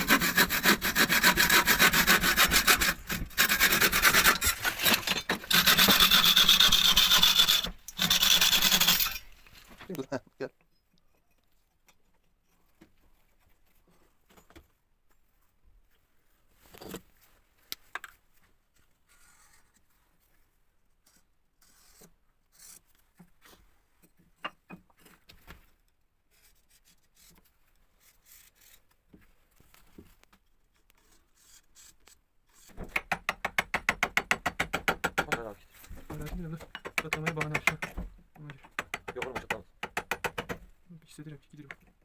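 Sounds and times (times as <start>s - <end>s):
scraping and knocking on metal: 0.0s - 9.9s, 32.6s - 40.7s
loud fast rattle: 3.4s - 9.4s.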